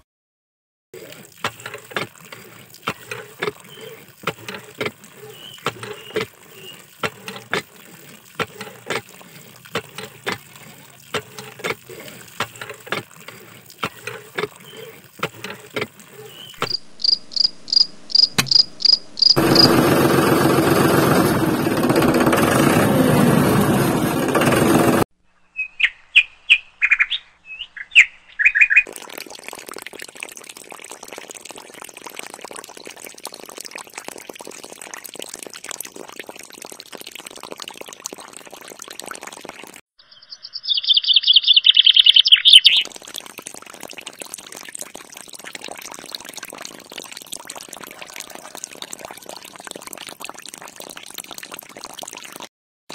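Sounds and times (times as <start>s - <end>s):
water trickling into metal bucket: 1.0s - 17.2s, 28.8s - 39.9s, 42.7s - 52.5s
high chirping calls: 16.3s - 19.4s, 25.4s - 28.8s, 40.0s - 42.8s.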